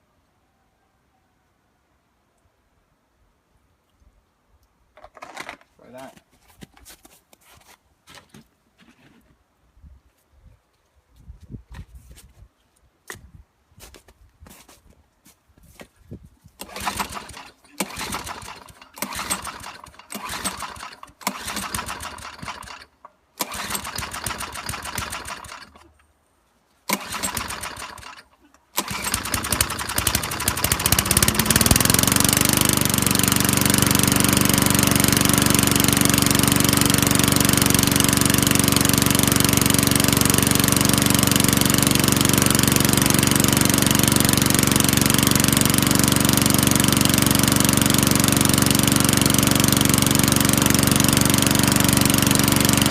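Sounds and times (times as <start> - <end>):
lawnmower engine running: 16.6 - 26.0, 26.9 - 52.9
recoil starter pulls: 16.6 - 26.1, 26.9 - 52.9.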